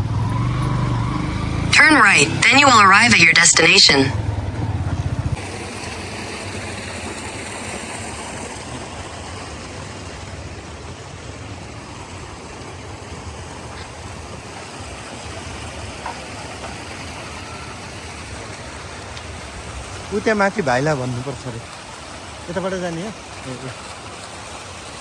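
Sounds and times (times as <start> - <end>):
car engine running: 0.0 - 10.8.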